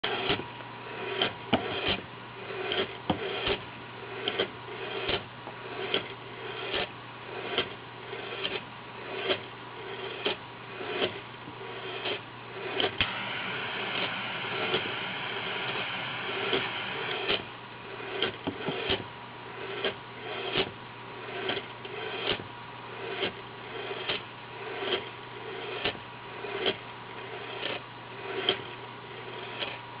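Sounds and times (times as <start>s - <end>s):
steady hiss: 13.0s - 17.3s.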